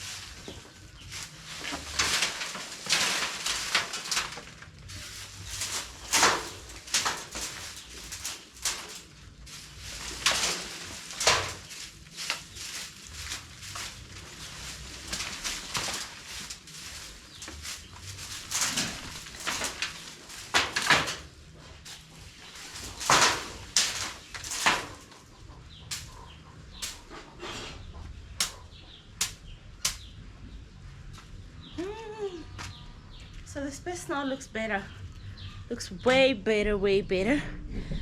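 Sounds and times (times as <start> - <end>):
scraping and brushing: 0.0 - 30.1.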